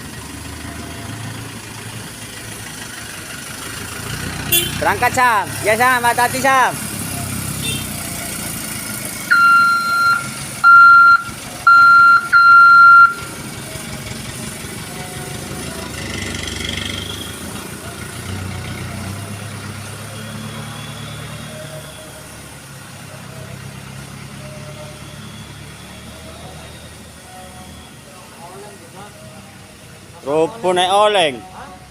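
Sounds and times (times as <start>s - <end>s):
truck engine running: 0.0s - 31.9s
truck horn blasts: 4.4s - 5.0s, 7.6s - 8.1s.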